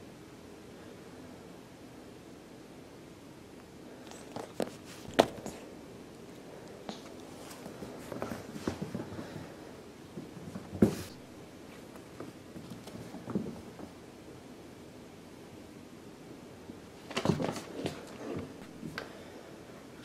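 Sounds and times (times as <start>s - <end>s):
kitten paw steps and thumps: 4.1s - 5.6s.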